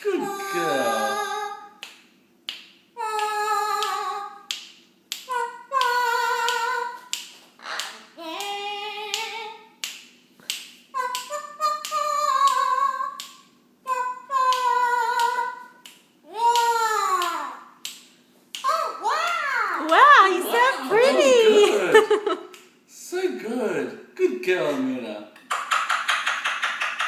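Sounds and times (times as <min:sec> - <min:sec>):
parrot singing wavering notes: 0:07.6 - 0:09.6, 0:11.0 - 0:13.2, 0:13.8 - 0:17.6.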